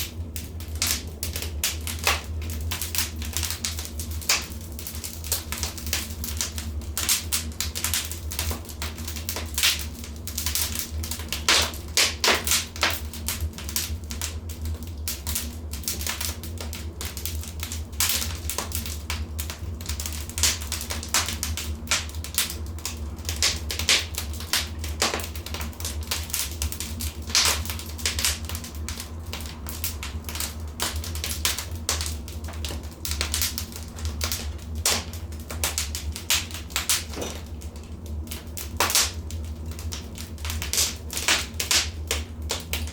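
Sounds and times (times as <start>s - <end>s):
wood fire crackling: 0.0s - 42.9s.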